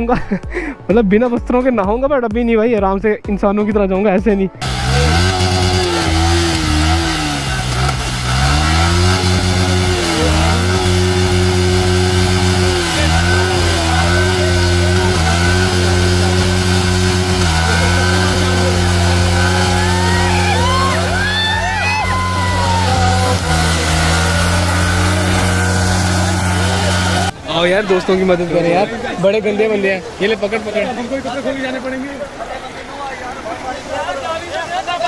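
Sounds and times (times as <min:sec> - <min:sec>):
motorcycle engine revving: 0:04.6 - 0:27.6.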